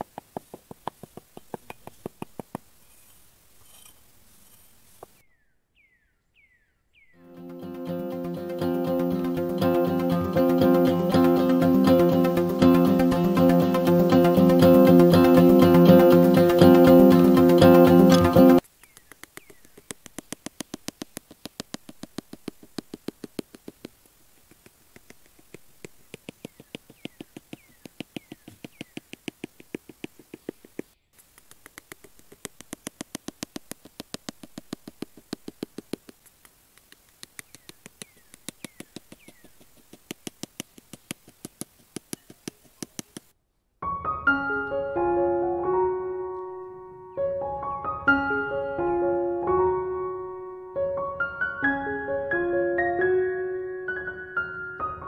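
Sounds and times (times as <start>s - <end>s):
piano music: 7.2s - 18.6s, 43.8s - 55.0s
rapid light clicks: 17.9s - 43.3s.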